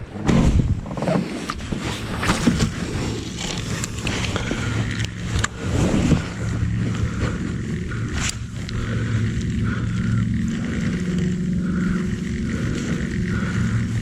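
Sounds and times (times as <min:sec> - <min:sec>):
fishing reel whirring: 0:01.9 - 0:14.0.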